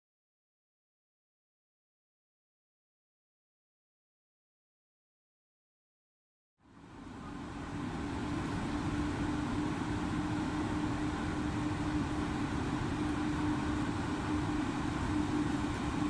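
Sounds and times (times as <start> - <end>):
train hum and rumble: 6.6 - 16.0.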